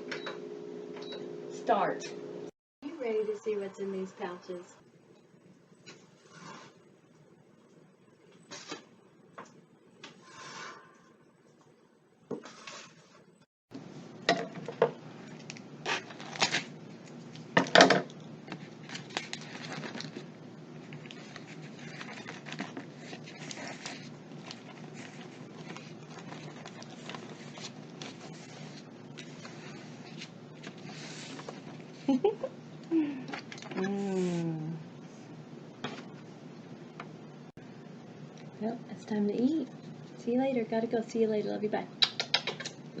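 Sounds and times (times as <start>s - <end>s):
low background hum: 0.0s - 43.0s
foil rustling: 15.8s - 16.8s, 18.6s - 20.3s, 21.0s - 31.7s.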